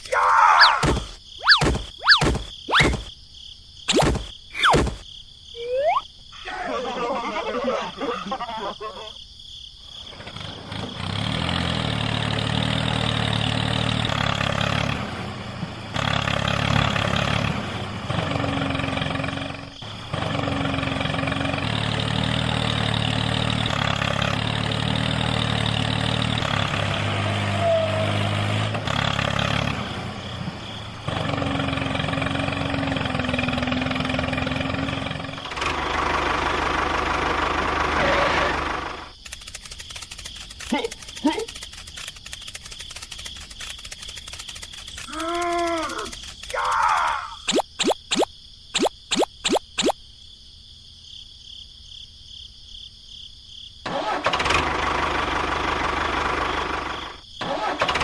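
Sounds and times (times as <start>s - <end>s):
small engine running: 10.1s - 27.5s, 28.3s - 46.9s, 53.9s - 58.0s.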